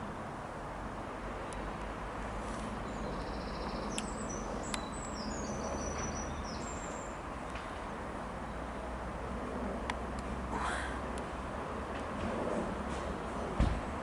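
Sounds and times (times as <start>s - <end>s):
small birds chirping: 2.6s - 7.6s
steady rushing noise: 7.0s - 14.0s.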